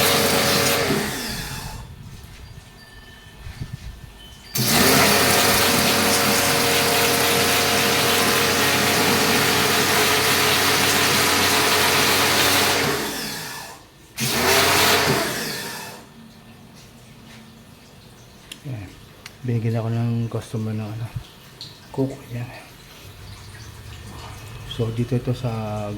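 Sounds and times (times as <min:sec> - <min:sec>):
electric motor machine running: 0:00.0 - 0:01.8, 0:04.5 - 0:16.1.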